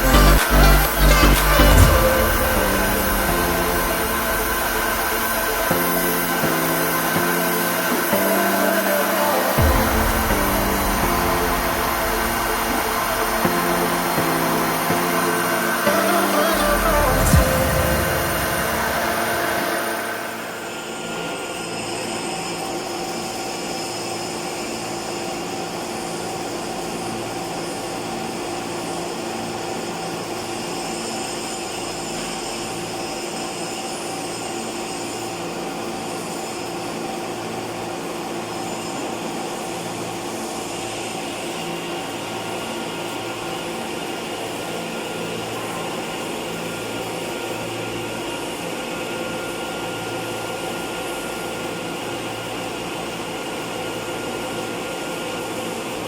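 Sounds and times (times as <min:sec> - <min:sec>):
faint low pulsing: 0:00.0 - 0:21.4
high-pitched whine: 0:00.0 - 0:56.0
machinery hum and whine: 0:00.0 - 0:56.0.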